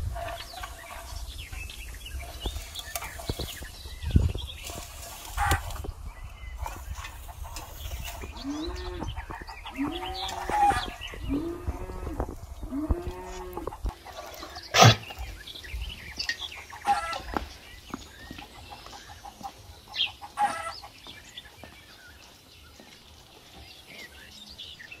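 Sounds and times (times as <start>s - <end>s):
chickens clucking: 0.0s - 24.2s
birds chirping: 0.0s - 25.0s.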